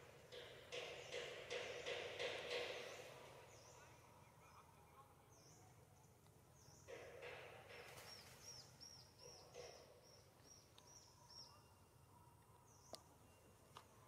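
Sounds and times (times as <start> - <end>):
bird chirps: 8.0 - 14.0.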